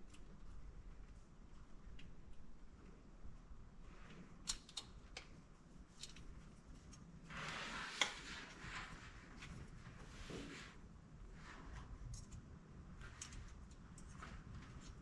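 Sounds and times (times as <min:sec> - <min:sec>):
scraping or rustling noise: 0:06.6 - 0:12.2.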